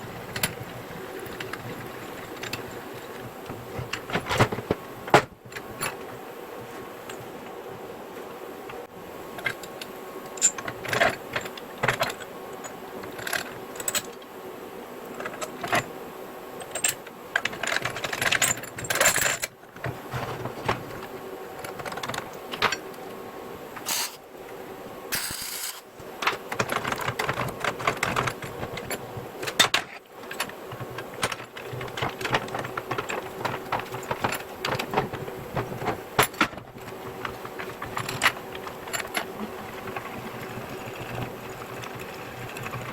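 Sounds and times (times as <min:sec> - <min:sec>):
faint steady hum: 0:00.0 - 0:42.9
short hissing burst: 0:23.8 - 0:24.2, 0:25.1 - 0:25.9
steel parts clinking: 0:23.8 - 0:24.2, 0:25.1 - 0:25.9.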